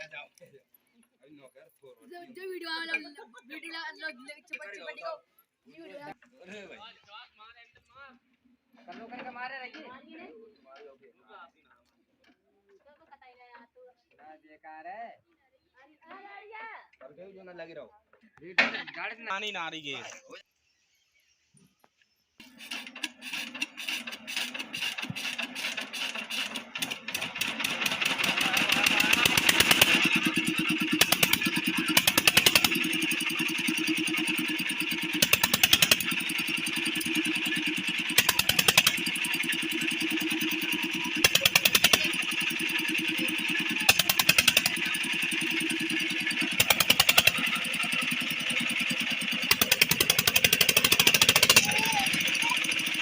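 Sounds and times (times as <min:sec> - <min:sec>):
diesel engine running: 0:23.1 - 0:53.0.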